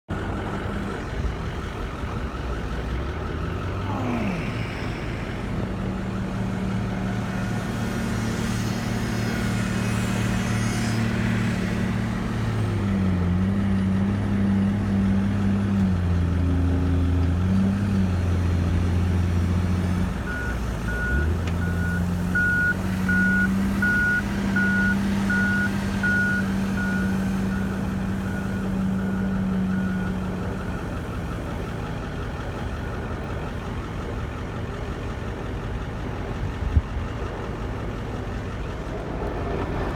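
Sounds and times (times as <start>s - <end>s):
heavy diesel engines running: 0.1s - 39.9s
reversing alarm beeping: 20.3s - 31.6s.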